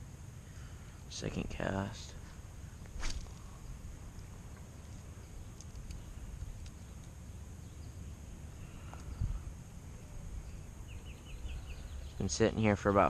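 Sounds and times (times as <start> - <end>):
faint high hum: 0.0 - 13.0
steady low rumble: 0.0 - 13.0.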